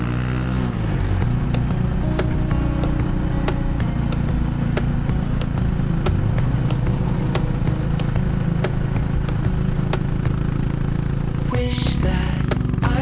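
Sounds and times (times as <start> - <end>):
sharp ticks: 0.0 - 11.2
motorcycle engine running: 0.0 - 13.0.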